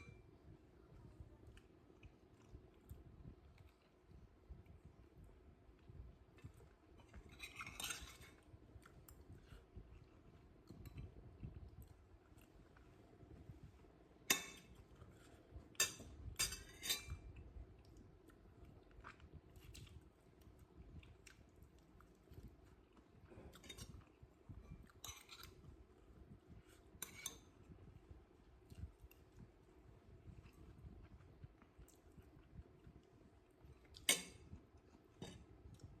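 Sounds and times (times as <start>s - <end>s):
cutlery clinking on a plate: 14.3s - 14.8s, 15.8s - 17.3s, 27.0s - 27.5s, 34.0s - 34.4s.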